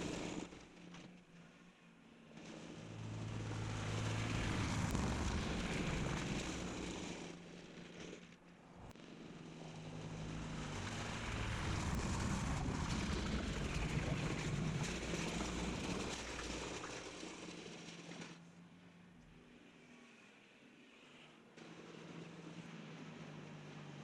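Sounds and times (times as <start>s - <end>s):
tractor diesel engine passing by: 2.9s - 7.4s, 9.5s - 18.2s.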